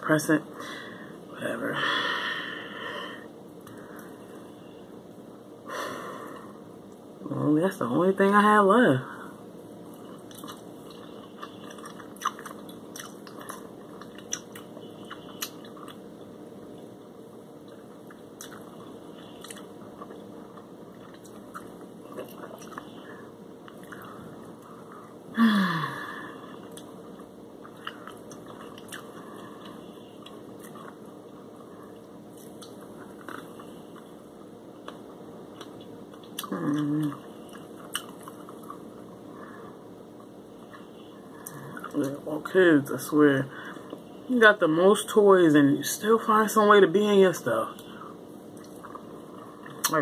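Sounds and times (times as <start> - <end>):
steady low hum: 0.0 - 50.0
person chewing fries: 9.8 - 25.2, 26.4 - 39.3, 47.8 - 50.0.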